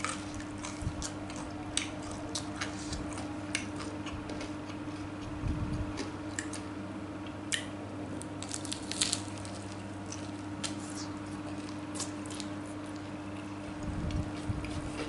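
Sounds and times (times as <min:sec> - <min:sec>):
chewing with wet smacks: 0:00.0 - 0:07.7
steady low hum: 0:00.0 - 0:15.0.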